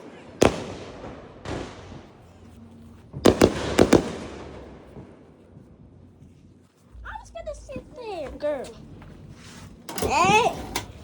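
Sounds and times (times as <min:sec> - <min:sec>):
firework bangs: 0:00.0 - 0:05.8.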